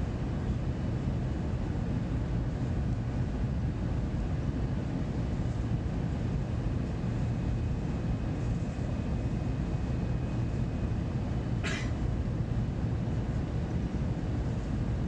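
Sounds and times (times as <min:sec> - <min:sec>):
airliner rumble in flight: 0:00.0 - 0:15.0.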